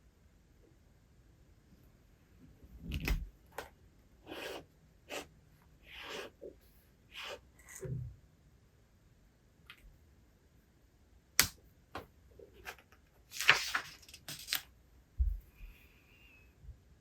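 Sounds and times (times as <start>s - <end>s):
paper rustling: 12.6s - 14.7s.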